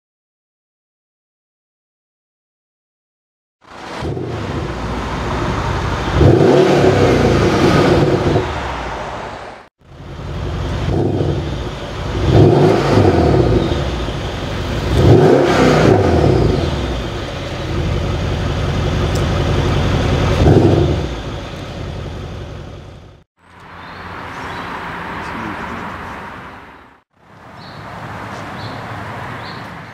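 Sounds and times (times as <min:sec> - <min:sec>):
car engine revving: 0:03.6 - 0:27.0.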